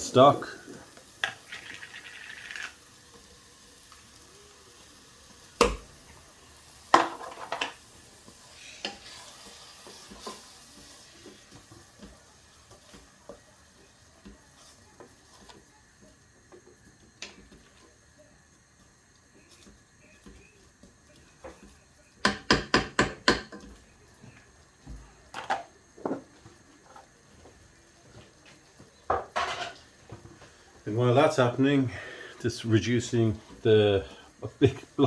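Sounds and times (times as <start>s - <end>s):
faint sizzle: 0.0s - 35.0s
spoon knocking against pan: 22.2s - 23.7s.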